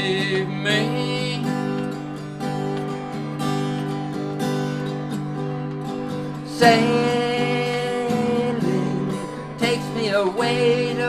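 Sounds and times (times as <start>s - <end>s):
person singing soft rock ballad: 0.0s - 2.2s, 6.4s - 11.0s
acoustic guitar strumming: 0.0s - 11.0s.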